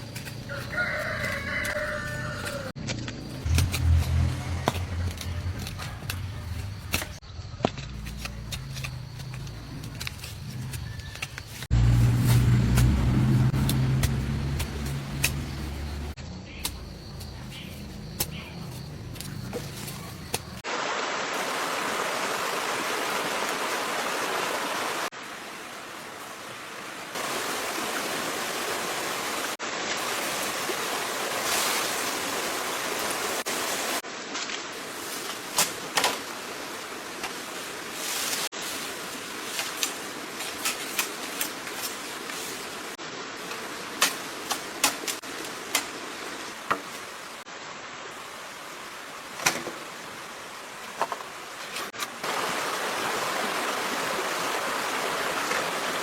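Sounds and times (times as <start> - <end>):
stream water running: 0.0 - 7.2, 7.8 - 56.0.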